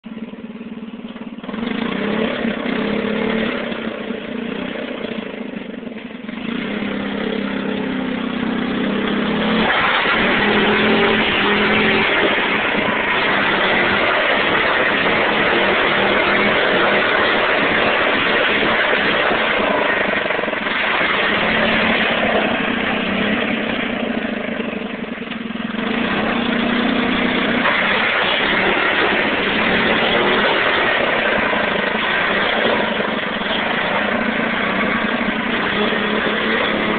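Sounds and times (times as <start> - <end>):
tractor engine revving under load: 1.0 - 36.9
gravel being pushed: 6.4 - 36.9.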